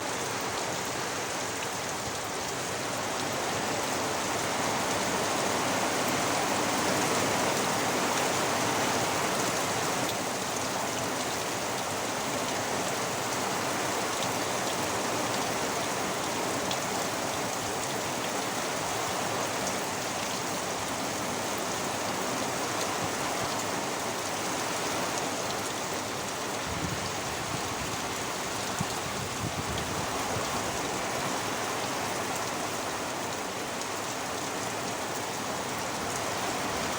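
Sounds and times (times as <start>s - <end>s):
heavy rain downpour: 0.0s - 36.9s.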